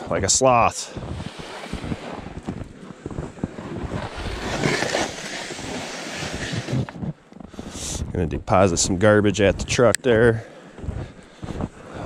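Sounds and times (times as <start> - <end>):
footsteps trudging through snow: 0.0 - 8.1, 9.4 - 12.0
loud rustle: 1.2 - 7.0.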